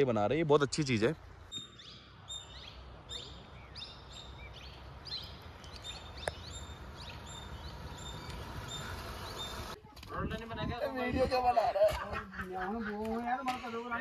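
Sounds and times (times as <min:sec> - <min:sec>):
small birds chirping: 0:00.4 - 0:09.8.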